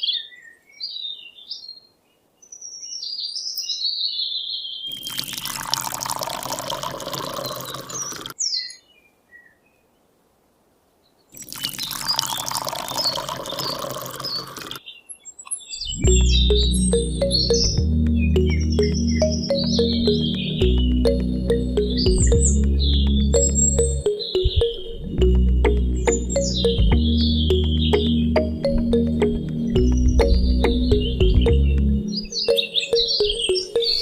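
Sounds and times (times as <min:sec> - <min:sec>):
birds chirping: 0:00.0 - 0:10.0, 0:11.1 - 0:34.0
water pouring and splashing: 0:04.9 - 0:08.4, 0:11.4 - 0:14.8.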